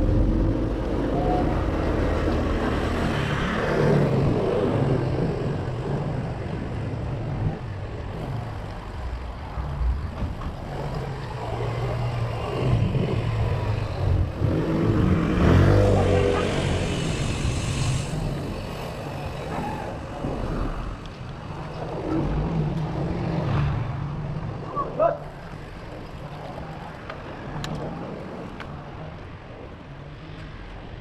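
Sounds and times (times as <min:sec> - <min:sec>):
steady road noise: 0:00.0 - 0:31.0
vehicle engines pulling away: 0:08.0 - 0:21.0.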